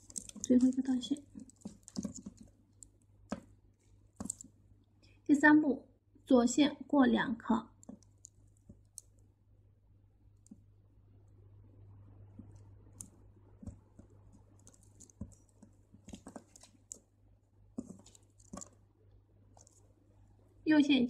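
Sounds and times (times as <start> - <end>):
crystal beads clicking together: 0.0 - 2.9
low steady hum: 0.0 - 21.0.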